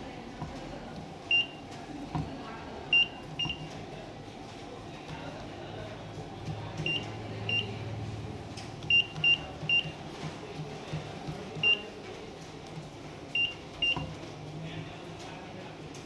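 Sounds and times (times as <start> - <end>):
touchscreen panel beeps: 6.8 - 7.7, 8.9 - 10.0, 13.4 - 14.0.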